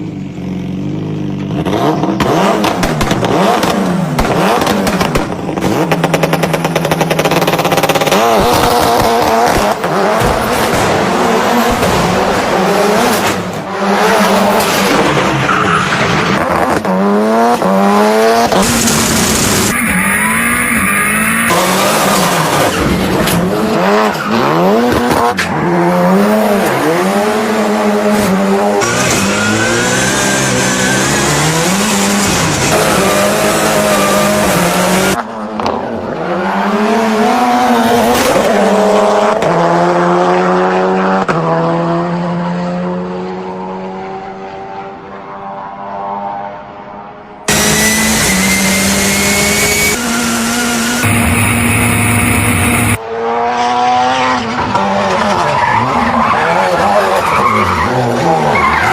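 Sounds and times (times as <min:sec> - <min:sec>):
car engines revving: 0:00.0 - 0:58.9.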